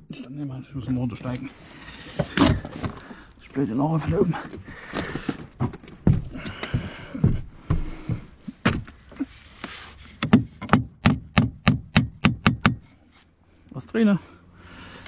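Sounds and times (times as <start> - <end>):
hammer striking a nail: 10.2 - 12.9.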